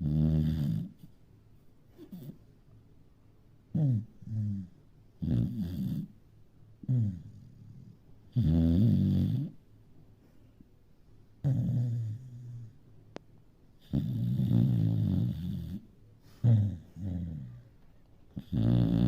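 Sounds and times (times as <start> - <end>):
small dog snoring: 0.0 - 1.1, 2.0 - 2.4, 3.7 - 6.2, 6.8 - 9.6, 11.4 - 12.8, 13.8 - 17.6, 18.3 - 19.0.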